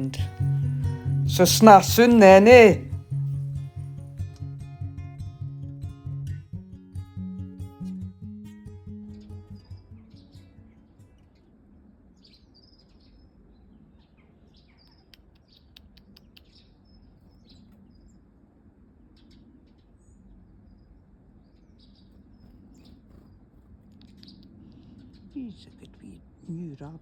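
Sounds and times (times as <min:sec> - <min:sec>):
small birds chirping: 0:12.2 - 0:18.2, 0:19.2 - 0:26.7.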